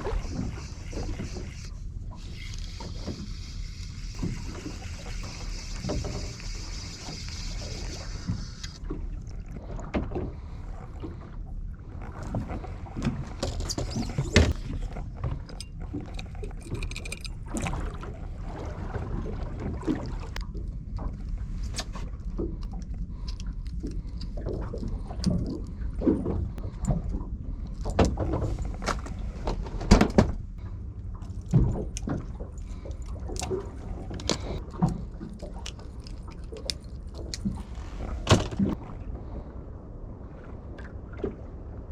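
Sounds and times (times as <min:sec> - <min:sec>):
boat engine low rumble: 0:00.0 - 0:41.9
knocks and thumps on boat: 0:27.9 - 0:30.5, 0:37.8 - 0:38.9.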